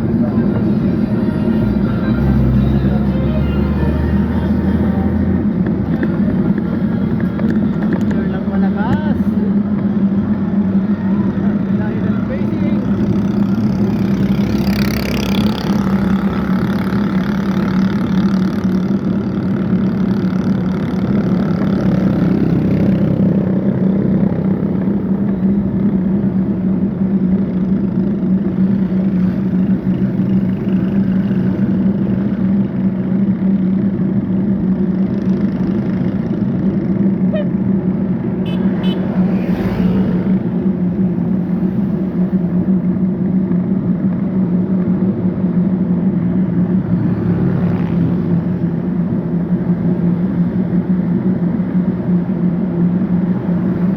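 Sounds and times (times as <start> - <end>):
vehicle passing: 0.0 - 6.9, 8.2 - 18.8, 38.0 - 42.6, 46.6 - 49.4
traffic: 0.0 - 53.9
vehicle and road hum: 0.0 - 53.9.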